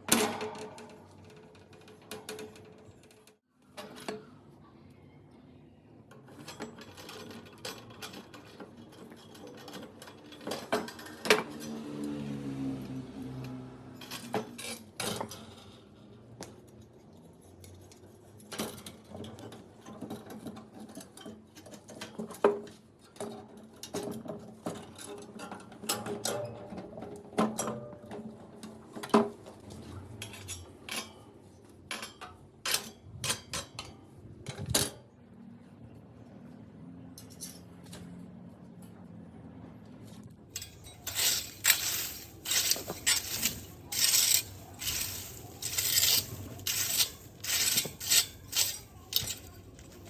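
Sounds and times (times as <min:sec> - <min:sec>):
hard objects clinking and knocking: 0:40.5 - 0:50.0.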